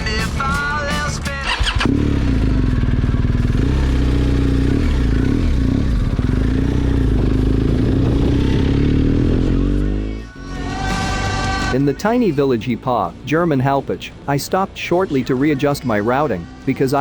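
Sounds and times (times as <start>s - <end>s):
rock music with singing: 0.0s - 1.9s, 9.5s - 17.0s
motorcycle engine running: 1.3s - 11.7s.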